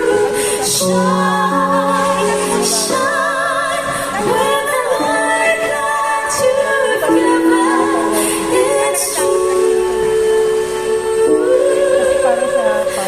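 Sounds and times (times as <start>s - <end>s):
vocal group singing in harmony: 0.0s - 13.0s.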